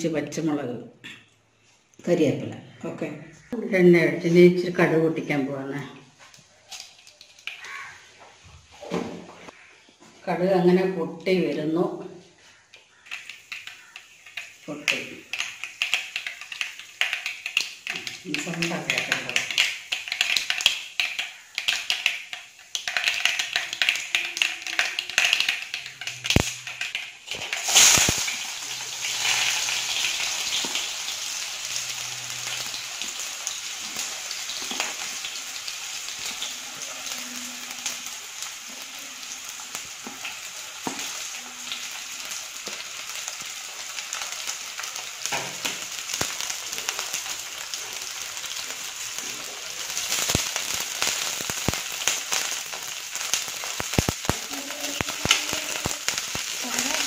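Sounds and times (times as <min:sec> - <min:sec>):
shallots sizzling in oil: 0:06.6 - 0:08.1, 0:12.9 - 0:57.0
mustard seeds popping in oil: 0:12.8 - 0:57.0.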